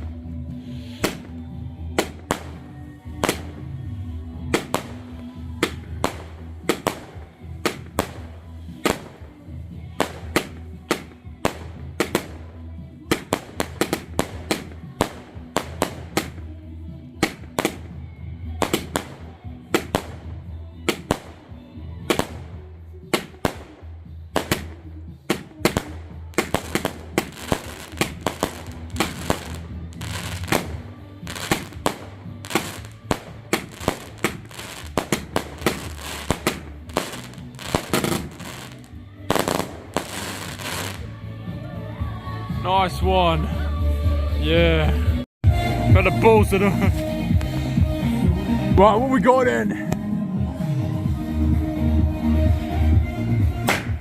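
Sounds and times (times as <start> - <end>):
fireworks bangs and crackles: 0.0 - 41.2, 53.4 - 54.0
background music: 0.0 - 54.0.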